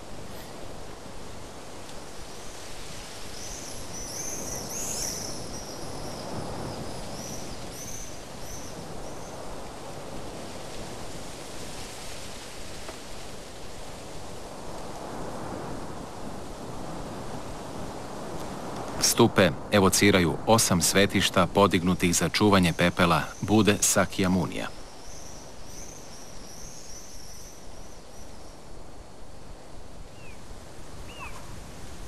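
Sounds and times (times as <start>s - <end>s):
outdoor ambient noise: 0.0s - 32.0s
small bird chirping: 3.4s - 9.4s, 31.1s - 31.5s.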